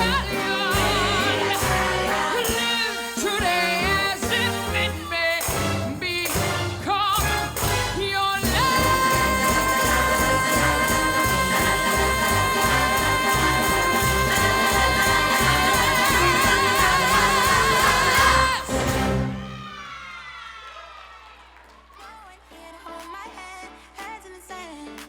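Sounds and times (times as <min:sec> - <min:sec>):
brass band with steady beat: 0:00.0 - 0:19.6.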